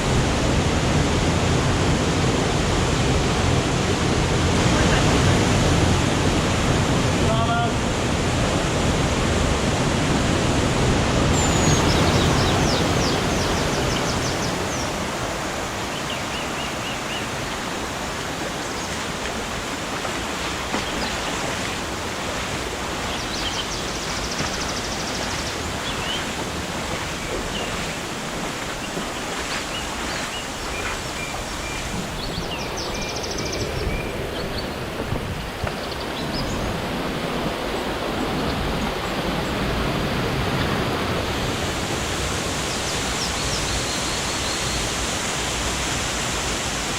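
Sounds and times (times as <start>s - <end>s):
flowing water rushing: 0.0s - 46.9s
birds chirping: 11.3s - 36.9s, 42.6s - 45.2s.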